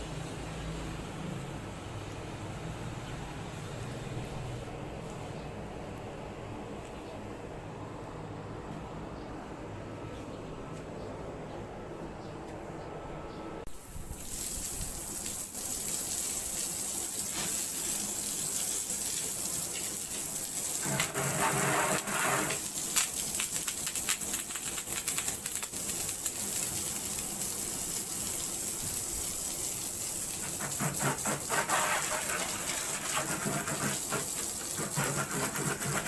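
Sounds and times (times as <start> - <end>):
pressure washer water jet hissing: 13.7 - 36.0.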